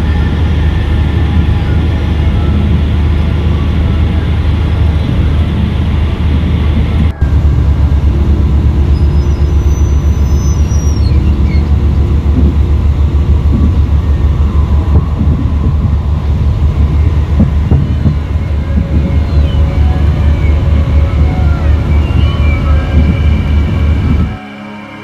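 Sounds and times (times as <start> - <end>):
train rumbling on rails: 0.0 - 24.4
faint high squeals: 7.1 - 24.4.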